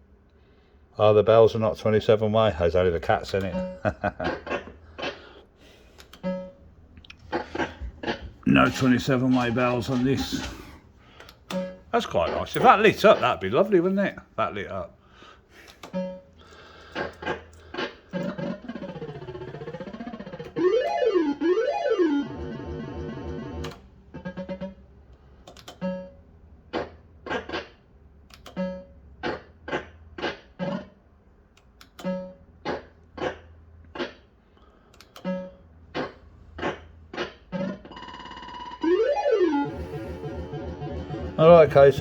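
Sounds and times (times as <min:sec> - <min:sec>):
warbling swooping electronic tones: 0:38.8 - 0:42.0.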